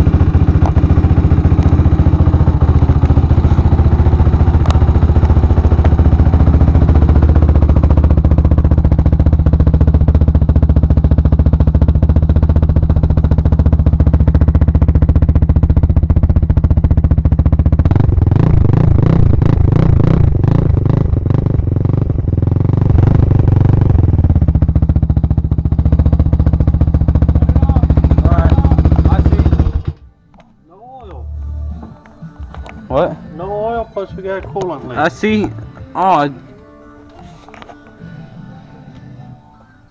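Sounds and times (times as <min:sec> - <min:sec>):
four-stroke engine idling: 0:00.0 - 0:30.0.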